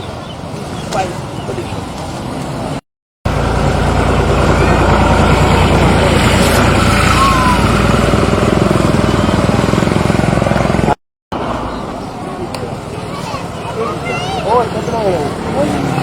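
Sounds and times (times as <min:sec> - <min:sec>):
vehicle engine running: 0:03.3 - 0:16.0.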